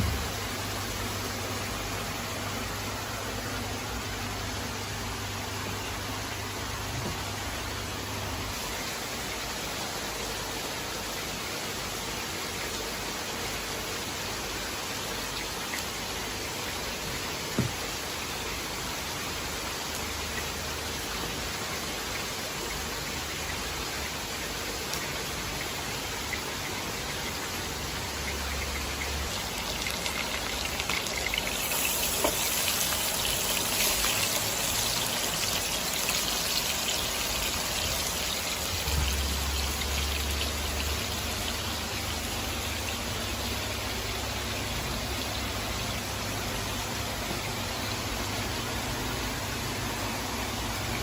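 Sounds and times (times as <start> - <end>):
steak sizzling in a frying pan: 28.3 - 41.6.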